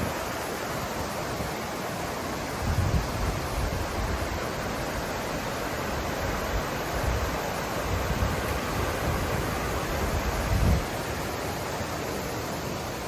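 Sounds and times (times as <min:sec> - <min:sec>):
river rushing: 0:00.0 - 0:13.0
wind buffeting microphone: 0:02.3 - 0:11.5.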